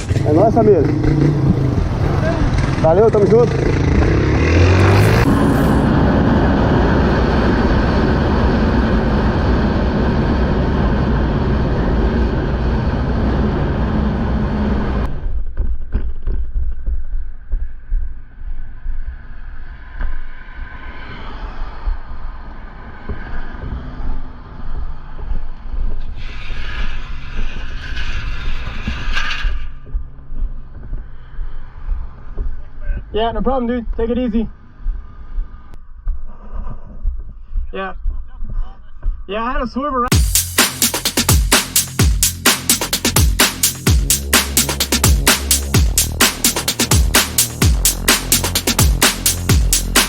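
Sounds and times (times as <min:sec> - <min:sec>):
motorcycle engine running: 0:00.0 - 0:14.7, 0:40.1 - 0:50.0
wind rush on microphone: 0:03.8 - 0:15.3.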